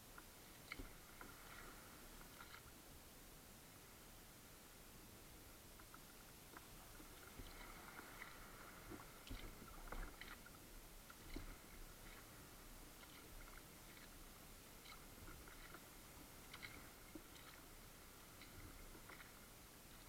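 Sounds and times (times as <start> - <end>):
kayak paddle splashes: 0.6 - 2.7, 7.0 - 20.0.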